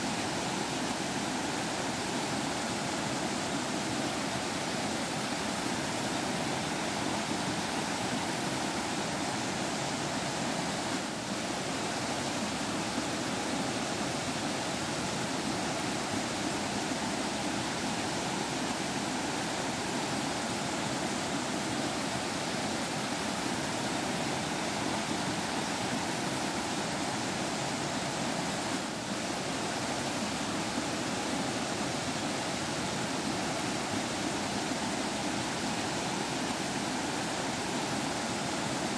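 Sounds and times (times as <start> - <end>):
stream water babbling: 0.0 - 38.9.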